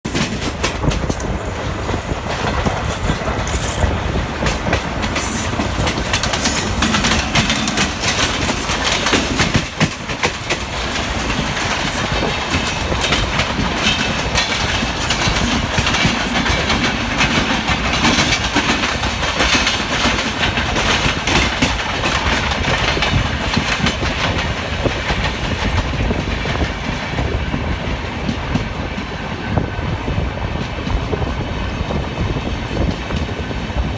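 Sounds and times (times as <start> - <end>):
train wheels clattering over rail joints: 0.1 - 33.9.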